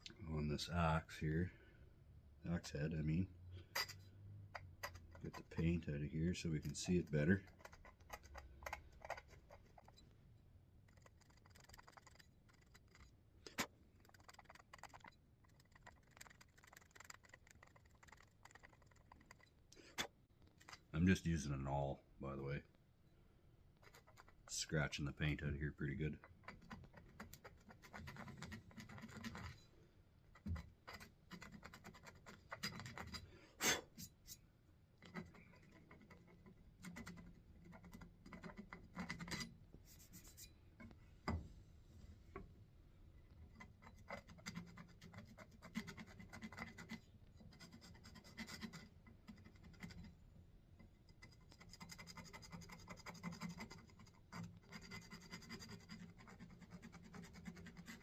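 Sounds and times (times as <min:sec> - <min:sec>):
awl scraping metal: 0:03.6 - 0:10.2, 0:23.8 - 0:34.4, 0:35.0 - 0:41.3.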